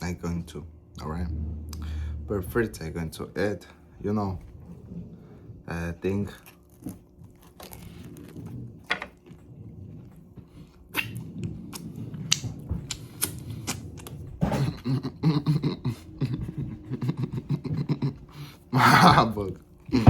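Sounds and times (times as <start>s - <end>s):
person chewing a sandwich: 6.2s - 18.7s.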